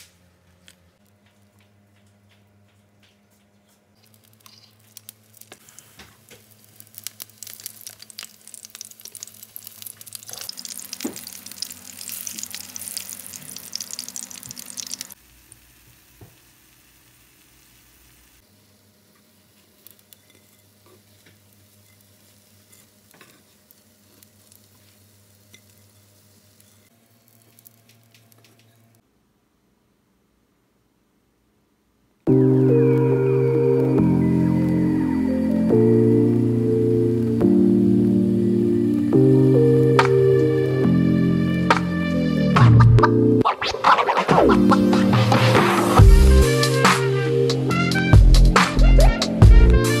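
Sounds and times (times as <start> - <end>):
food sizzling in hot oil: 4.0 - 18.4, 19.5 - 27.8.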